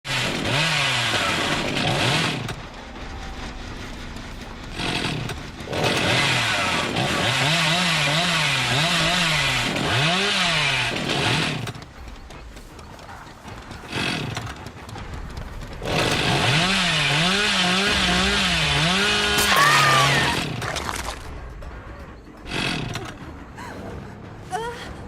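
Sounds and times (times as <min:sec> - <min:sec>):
chainsaw engine revving: 0:00.1 - 0:02.8, 0:04.6 - 0:11.8, 0:13.5 - 0:14.7, 0:15.7 - 0:20.7, 0:22.5 - 0:23.2.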